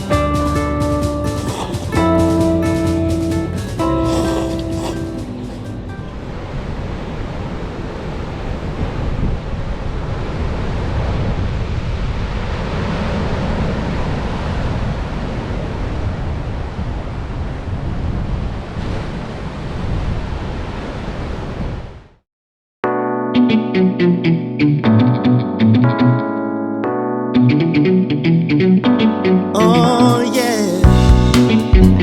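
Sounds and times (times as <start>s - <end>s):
heavy surf breaking: 0.0s - 9.2s.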